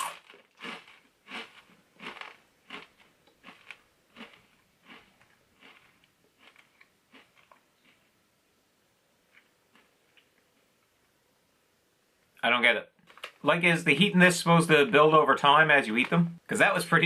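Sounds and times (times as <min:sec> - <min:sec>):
person chewing crunchy chip: 0:00.0 - 0:08.2, 0:09.3 - 0:10.3.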